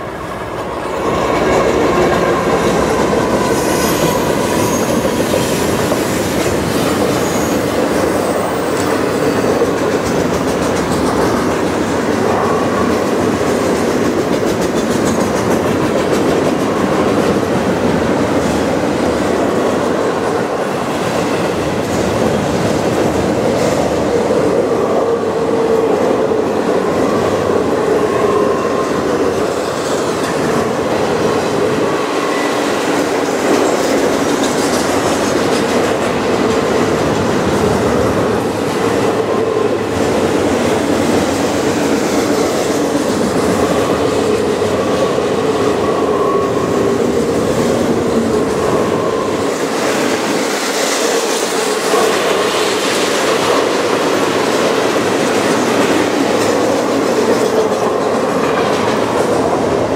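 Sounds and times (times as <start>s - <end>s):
freight train passing: 0.0s - 59.9s.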